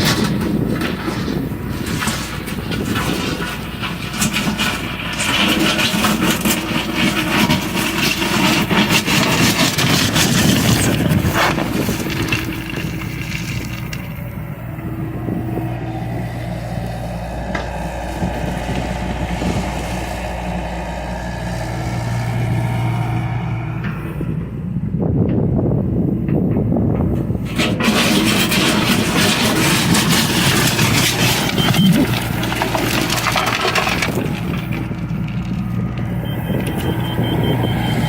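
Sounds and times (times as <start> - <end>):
clattering and knocks: 0.0 - 14.4, 26.3 - 36.1
excavator diesel engine running: 0.0 - 38.0.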